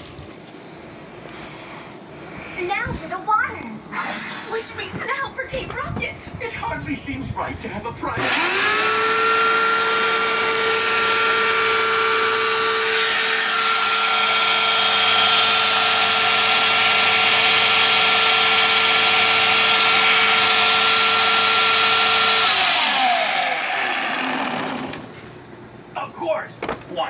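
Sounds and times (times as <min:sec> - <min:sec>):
machine motor whining: 0:08.0 - 0:25.4.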